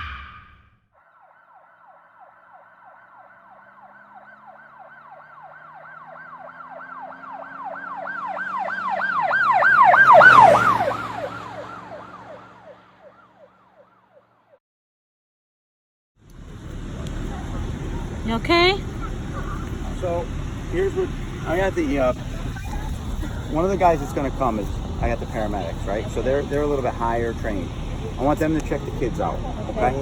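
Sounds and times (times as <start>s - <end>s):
emergency siren yelping: 0.0s - 14.4s.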